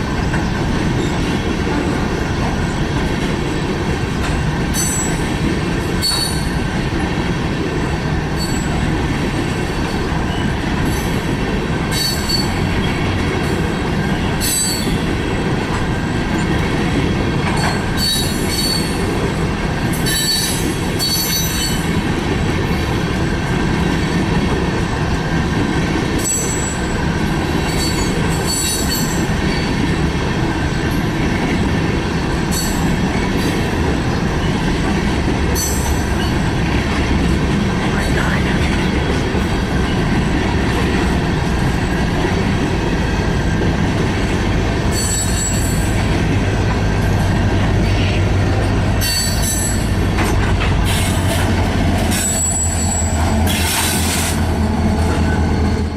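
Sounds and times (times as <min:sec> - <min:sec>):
train wheels rumbling on rail: 0:00.0 - 0:55.9
train wheel squeals: 0:04.7 - 0:05.3, 0:06.0 - 0:06.7, 0:08.4 - 0:08.8, 0:11.9 - 0:13.1, 0:14.2 - 0:15.1, 0:17.4 - 0:19.1, 0:19.9 - 0:22.0, 0:26.2 - 0:27.0, 0:27.6 - 0:29.9, 0:35.6 - 0:36.5, 0:44.9 - 0:46.0, 0:47.8 - 0:55.9.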